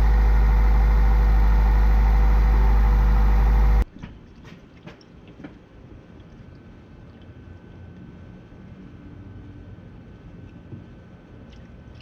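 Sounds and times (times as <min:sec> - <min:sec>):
car engine idling: 0:00.0 - 0:03.8.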